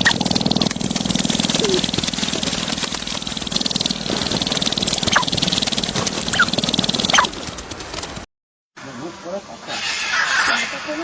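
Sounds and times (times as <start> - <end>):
animal chatter: 0.0 - 7.6.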